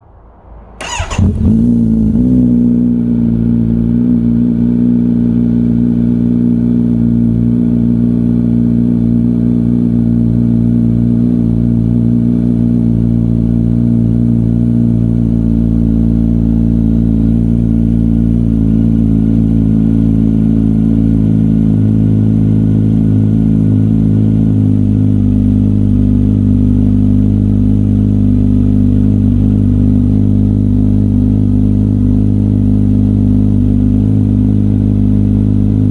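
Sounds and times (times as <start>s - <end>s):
motorcycle engine idling: 0.8s - 35.9s.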